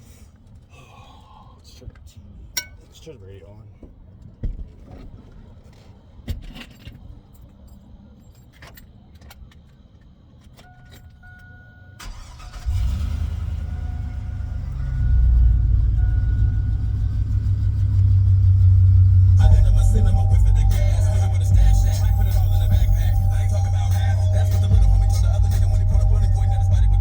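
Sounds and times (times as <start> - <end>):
dashboard warning chime: 10.6 - 12.2, 13.5 - 17.4, 19.4 - 27.0
truck engine starting and running: 11.4 - 27.0.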